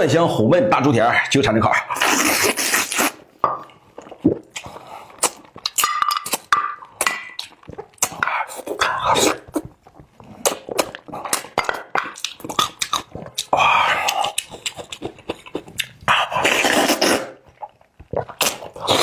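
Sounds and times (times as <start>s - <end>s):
sucking: 1.9s - 3.2s, 16.1s - 17.4s
wet chewing: 2.0s - 3.2s, 4.0s - 19.0s
lip smacks: 10.3s - 19.0s.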